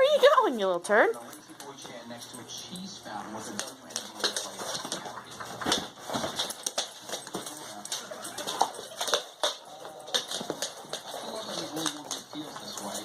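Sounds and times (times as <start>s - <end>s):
dog claws clicking on hard floor: 1.1s - 13.0s.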